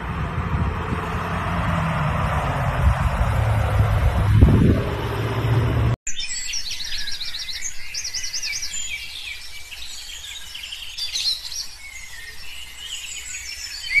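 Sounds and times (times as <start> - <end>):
songbirds singing: 6.1 - 14.0.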